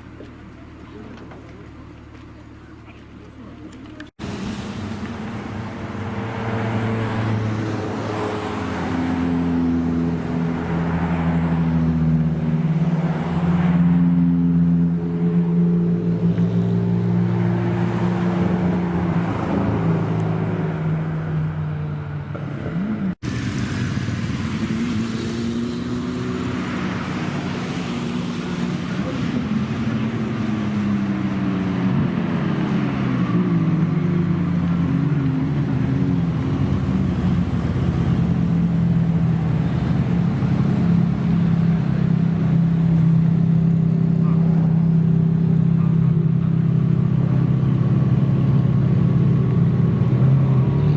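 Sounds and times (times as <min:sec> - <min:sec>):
car engines revving: 0:00.0 - 0:50.9.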